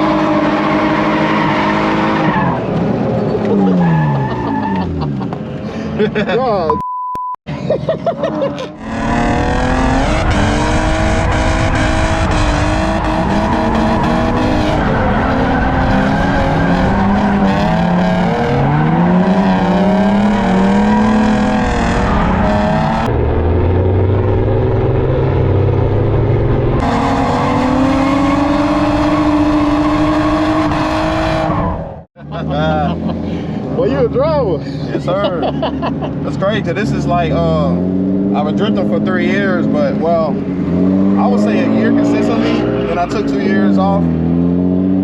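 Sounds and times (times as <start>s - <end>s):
car engine revving hard: 8.8s - 32.0s, 37.0s - 45.0s.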